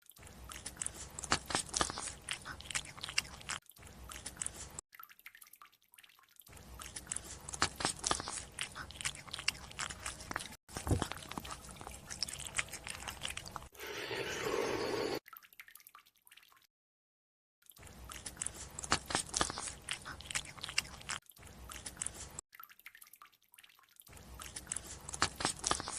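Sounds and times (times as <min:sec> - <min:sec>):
wet crunchy chewing: 0:00.0 - 0:04.8, 0:06.5 - 0:13.7, 0:17.8 - 0:22.4, 0:24.1 - 0:25.9.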